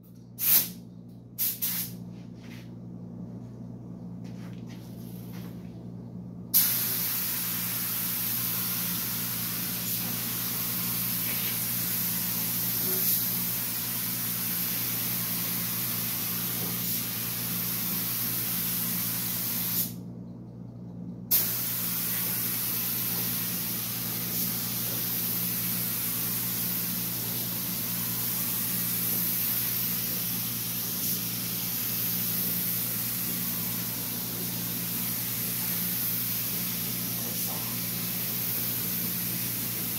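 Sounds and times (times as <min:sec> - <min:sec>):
steady low hum: 0:00.0 - 0:39.9
paint spray gun hissing: 0:00.4 - 0:00.8, 0:06.6 - 0:20.0, 0:21.3 - 0:39.9.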